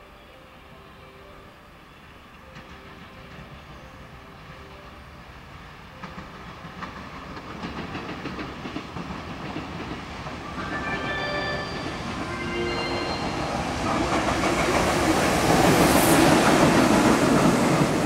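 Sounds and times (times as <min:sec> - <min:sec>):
freight train approaching: 0:00.0 - 0:18.0
short high tones: 0:10.6 - 0:13.7.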